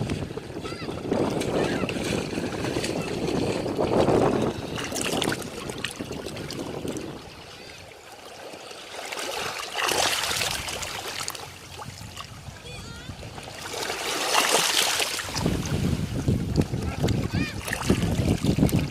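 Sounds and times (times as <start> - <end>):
ocean waves washing onto beach: 0.0 - 18.9.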